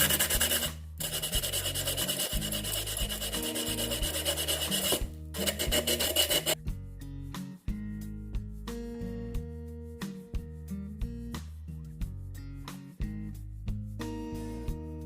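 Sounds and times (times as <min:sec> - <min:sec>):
sandpaper rubbing on vase: 0:00.0 - 0:06.6
background music: 0:00.0 - 0:15.0.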